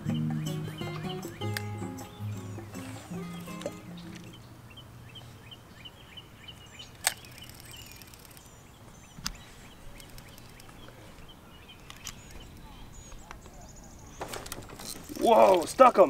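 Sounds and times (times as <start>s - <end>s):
songbirds chirping: 0.0s - 16.0s
sharp click: 7.0s - 8.4s.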